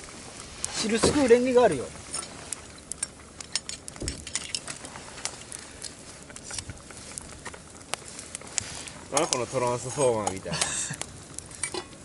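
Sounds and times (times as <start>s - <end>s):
metal cookware clinking: 11.6s - 11.9s.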